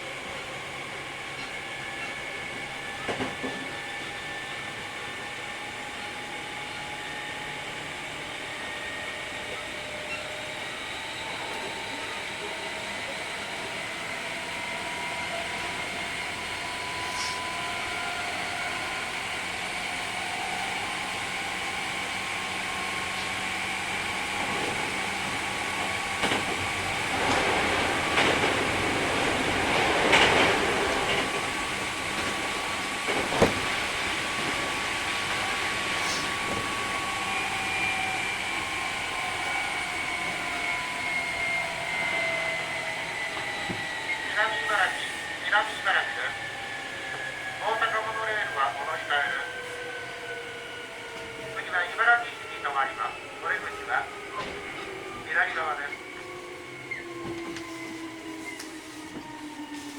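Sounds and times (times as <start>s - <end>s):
rattle and clatter over track: 24.4s - 35.4s.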